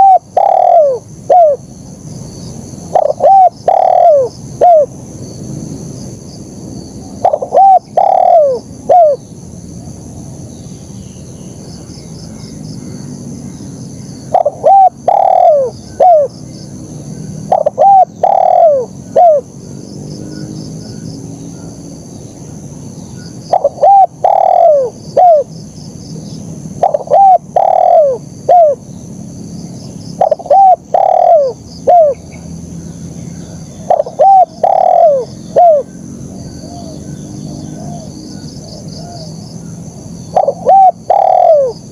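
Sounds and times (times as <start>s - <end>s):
dove cooing: 0.0s - 1.6s, 2.9s - 4.9s, 7.2s - 9.2s, 14.3s - 16.4s, 17.4s - 19.5s, 23.5s - 25.5s, 26.8s - 28.8s, 30.2s - 32.2s, 33.8s - 36.0s, 37.6s - 39.4s, 40.3s - 41.9s
high-pitched insect drone: 0.0s - 41.9s.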